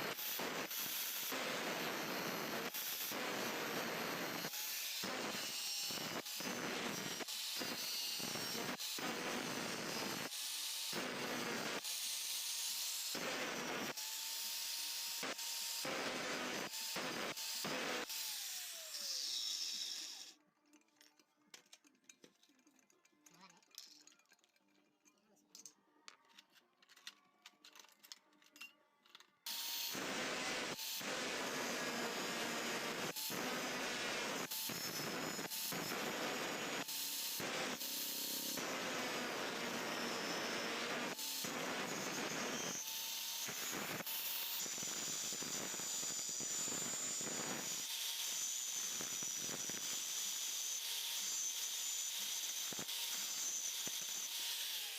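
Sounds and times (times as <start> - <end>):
small metal parts clicking: 20.3 - 29.5.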